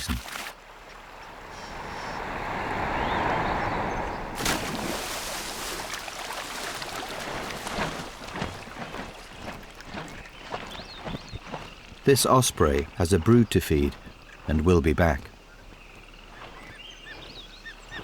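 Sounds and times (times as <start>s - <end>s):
sloshing water: 0.0s - 13.4s
bird splashing into water: 0.2s - 11.8s
rushing noise: 1.1s - 5.5s.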